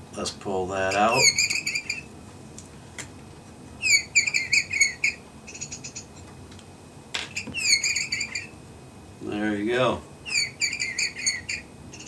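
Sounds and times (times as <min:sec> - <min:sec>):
electronic bird chirps: 0:03.8 - 0:06.1, 0:07.6 - 0:08.5, 0:10.3 - 0:12.0.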